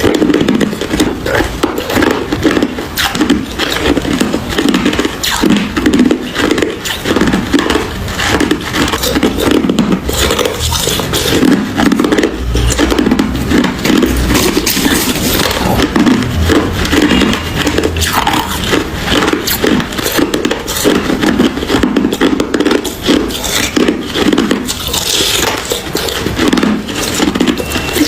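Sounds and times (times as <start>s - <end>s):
ice being chewed and crunched: 0.0s - 28.0s.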